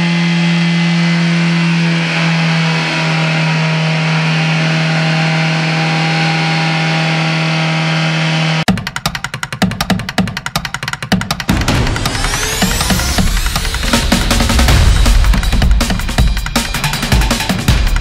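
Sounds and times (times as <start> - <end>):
upbeat electronic music with drums: 8.7 - 18.0
car engine running: 11.5 - 18.0.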